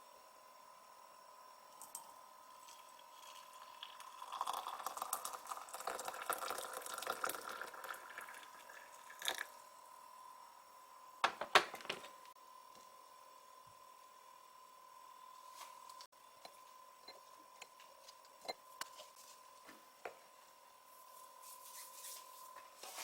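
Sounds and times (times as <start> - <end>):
knocks: 11.2 - 12.1.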